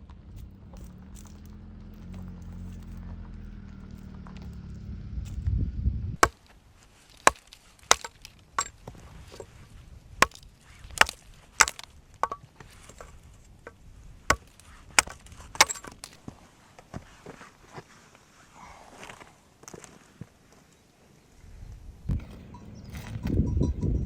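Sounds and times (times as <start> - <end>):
wood being chopped: 6.2 - 9.5, 10.2 - 16.3.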